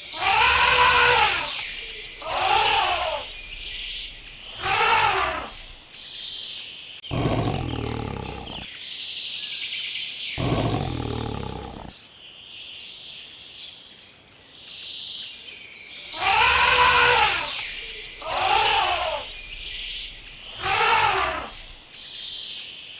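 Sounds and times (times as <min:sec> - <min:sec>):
pitched animal call: 0:00.0 - 0:05.8, 0:07.1 - 0:08.7, 0:10.4 - 0:11.9, 0:16.2 - 0:21.9
birds chirping: 0:00.0 - 0:06.5, 0:07.1 - 0:08.7, 0:10.4 - 0:12.0, 0:16.1 - 0:22.5
deep animal roars: 0:00.2 - 0:05.8, 0:07.1 - 0:08.7, 0:10.4 - 0:11.9, 0:16.2 - 0:21.9.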